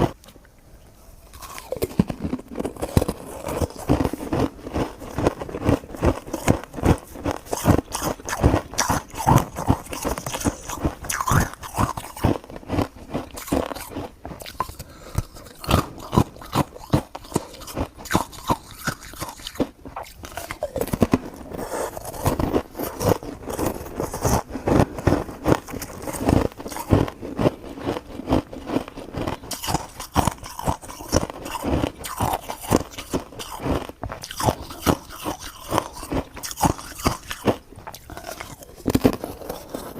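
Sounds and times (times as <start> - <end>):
crunching and crackling clicks: 1.3 - 39.9.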